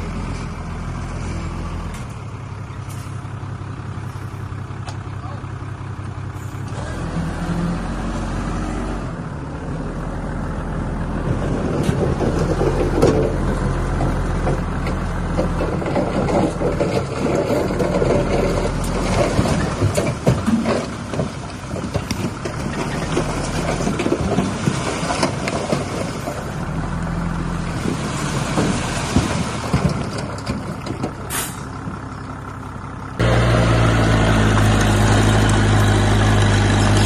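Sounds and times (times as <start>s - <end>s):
diesel engine running: 0.0s - 37.0s
metallic clanks and rattles: 11.3s - 26.5s.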